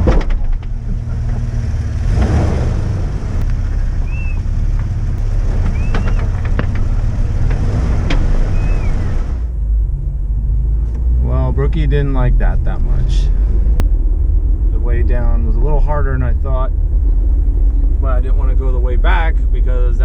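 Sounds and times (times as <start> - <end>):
tires knocking over rocks: 0.0 - 9.5
off-road vehicle engine under load: 0.0 - 20.0
short high squeaks: 5.6 - 6.5.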